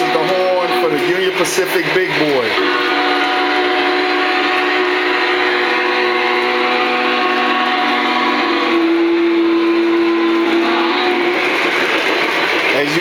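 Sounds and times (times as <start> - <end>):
long chime-like steam whistle: 2.6 - 11.7.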